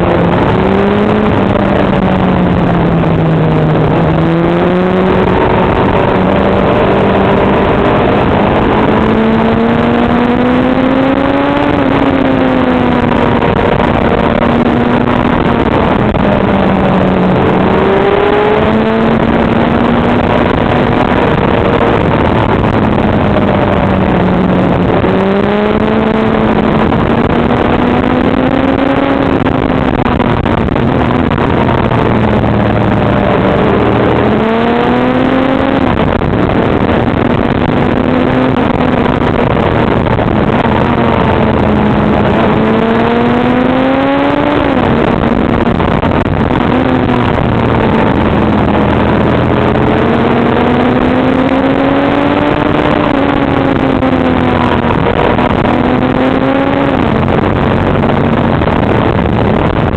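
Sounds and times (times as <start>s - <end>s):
motorcycle engine running: 0.0s - 59.9s
wind noise: 0.0s - 59.9s.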